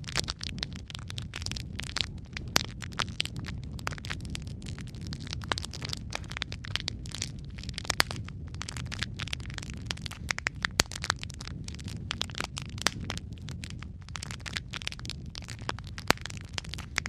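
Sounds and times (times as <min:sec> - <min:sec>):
low rumble of flame: 0:00.0 - 0:17.0
wood fire crackling and popping: 0:00.0 - 0:17.0.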